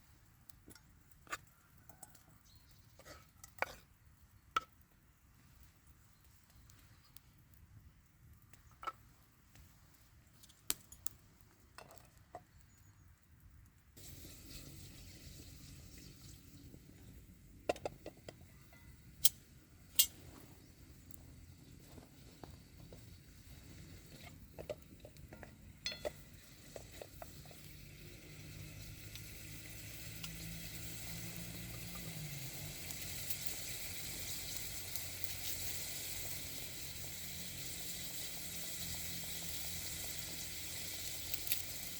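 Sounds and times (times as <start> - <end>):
frying sizzle: 14.0 - 41.9.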